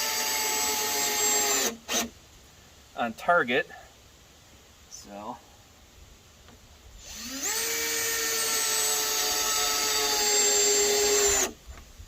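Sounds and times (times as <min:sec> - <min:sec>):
power tool motor whine: 0:07.0 - 0:11.6.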